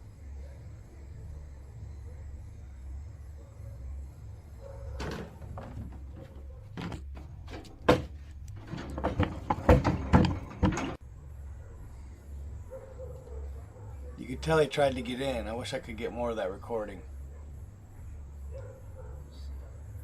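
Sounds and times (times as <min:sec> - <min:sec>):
door rattling: 0:04.9 - 0:11.0
door knocking and banging: 0:05.0 - 0:11.0.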